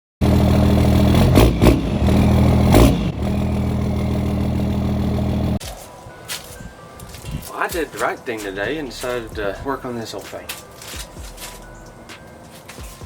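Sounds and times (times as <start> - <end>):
truck engine idling and revving: 0.2 - 5.6.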